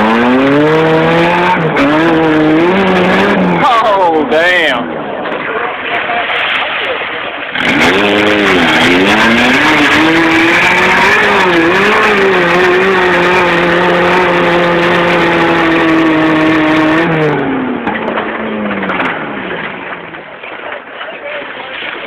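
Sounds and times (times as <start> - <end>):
engine revving hard: 0.0 - 3.8, 7.5 - 17.8.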